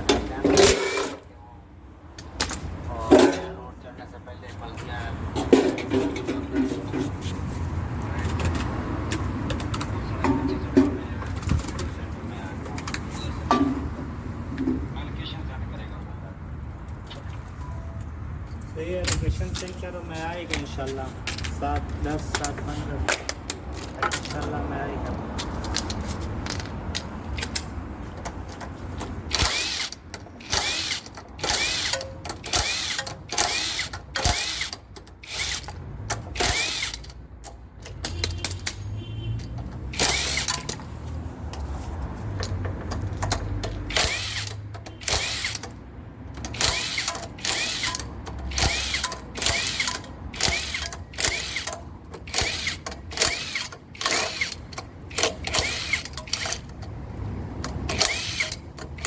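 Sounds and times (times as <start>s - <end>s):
socket ratchet clicking: 29.3s - 38.8s, 42.4s - 57.0s, 57.6s - 59.0s.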